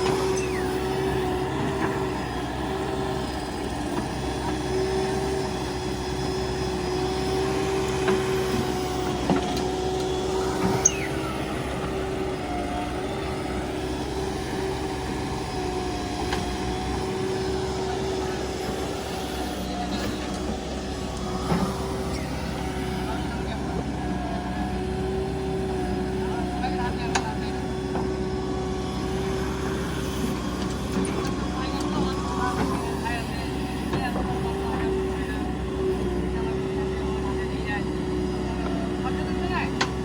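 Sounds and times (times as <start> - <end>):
heavy diesel machinery running: 0.0 - 40.0.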